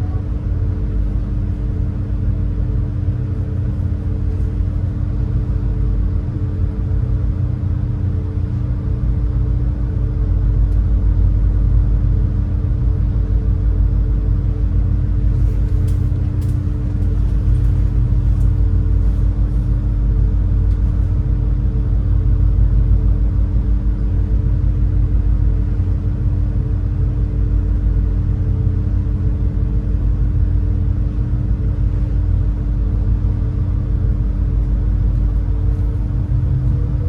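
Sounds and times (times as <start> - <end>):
boat engines rumbling: 15.0 - 21.7, 34.7 - 37.0.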